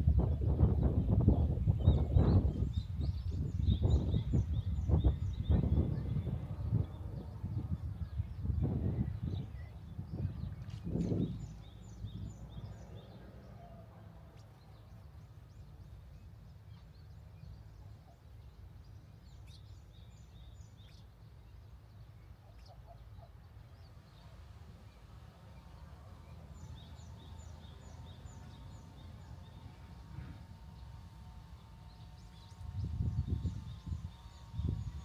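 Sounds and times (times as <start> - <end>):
small birds chirping: 14.4 - 35.0
low outdoor rumble: 23.4 - 35.0.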